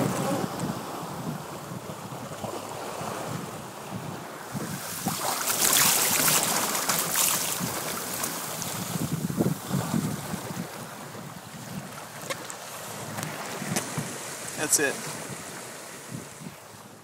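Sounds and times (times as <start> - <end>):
water rushing along boat hull: 0.0 - 17.0
wind buffeting microphone: 0.0 - 17.0.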